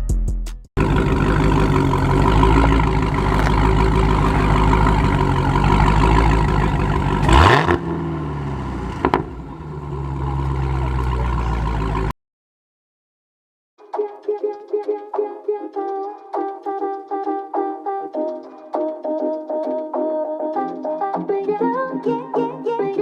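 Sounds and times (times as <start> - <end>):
car engine revving: 0.8 - 12.1.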